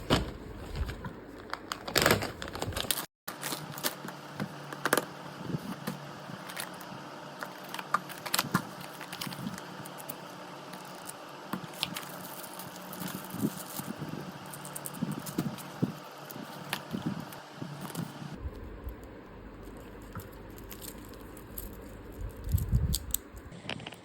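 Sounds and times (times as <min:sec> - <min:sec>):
packaging rustling: 0:00.0 - 0:18.4.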